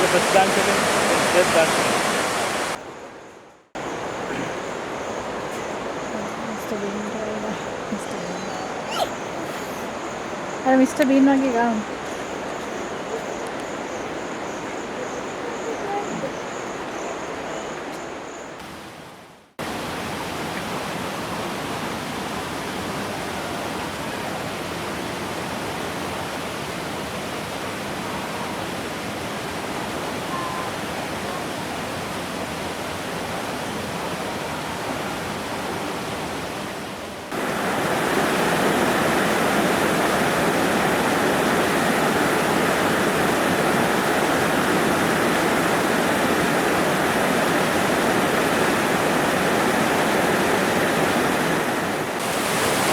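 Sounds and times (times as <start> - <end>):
waterfall rushing: 0.0 - 2.8, 19.6 - 52.9.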